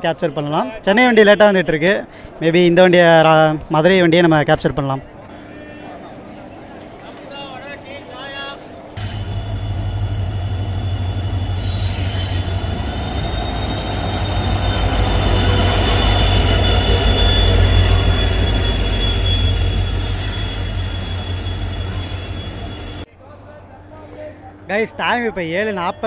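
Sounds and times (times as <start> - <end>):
train rumbling past: 8.9 - 23.1
high wheel squeal: 9.0 - 23.1.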